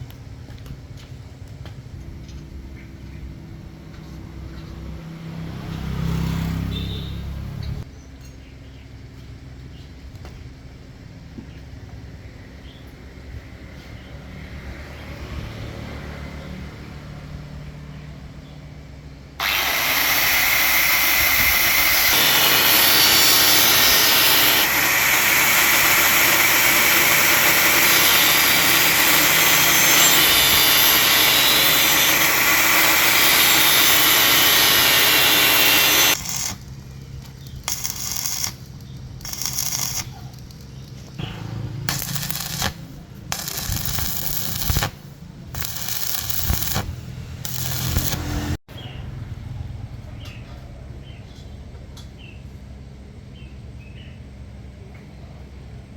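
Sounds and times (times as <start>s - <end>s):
power tool running: 19.4s - 40.6s, 41.2s - 48.6s.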